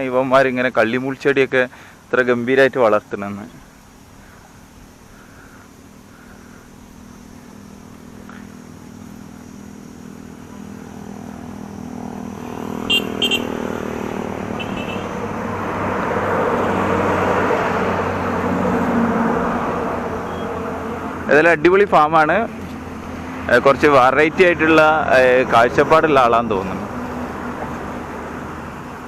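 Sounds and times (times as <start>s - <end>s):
vehicle engine approaching: 5.9s - 29.0s
car horn toots: 12.8s - 13.8s, 14.5s - 15.2s.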